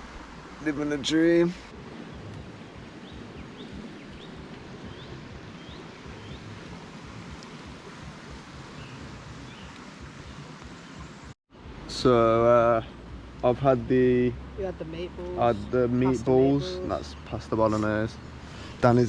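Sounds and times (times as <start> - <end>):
wind buffeting microphone: 1.6 - 11.8
bird chirping: 3.0 - 6.5.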